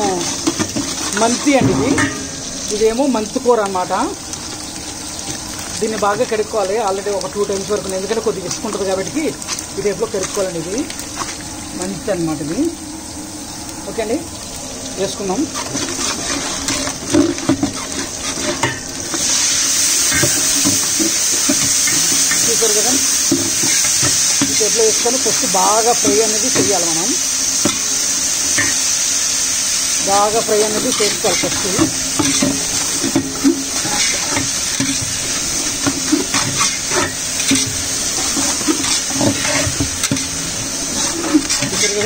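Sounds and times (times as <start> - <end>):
metal spatula scraping a pot: 0.0 - 2.6, 15.5 - 22.5, 30.6 - 42.0
onions sizzling in oil: 0.0 - 42.0.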